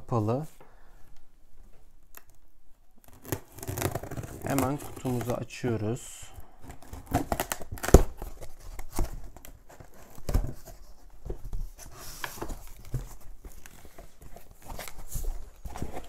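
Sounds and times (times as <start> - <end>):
cardboard box being opened: 3.1 - 5.4, 6.6 - 16.0
packaging rustling and knocking: 6.6 - 16.0.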